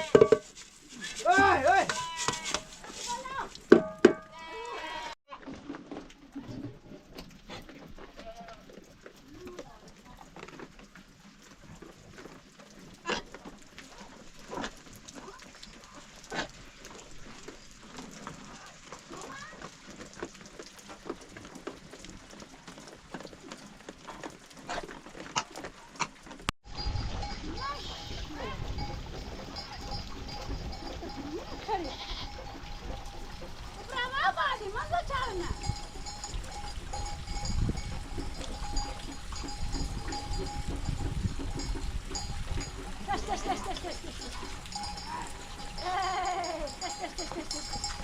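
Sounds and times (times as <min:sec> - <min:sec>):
livestock moving about: 0:00.0 - 0:48.0
goats and sheep bleating: 0:01.2 - 0:03.4, 0:04.3 - 0:05.2, 0:30.8 - 0:33.1, 0:43.1 - 0:47.9.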